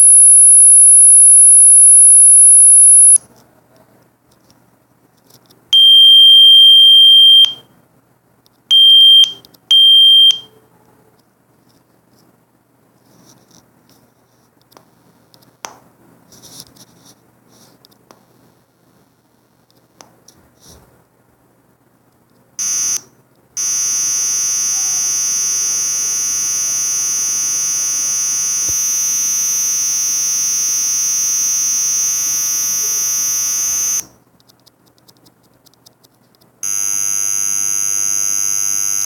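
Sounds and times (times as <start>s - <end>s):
harsh buzzer tone: 0.0s - 3.2s, 22.6s - 23.0s, 23.6s - 34.1s, 36.6s - 39.0s.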